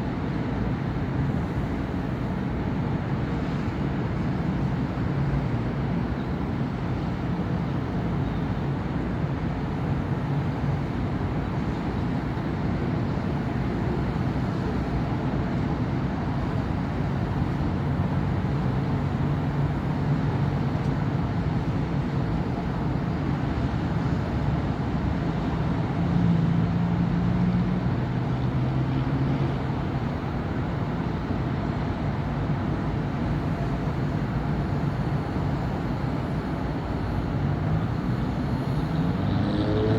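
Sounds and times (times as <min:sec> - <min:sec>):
road traffic hum: 0:00.0 - 0:39.9
vehicle passing: 0:37.5 - 0:39.9.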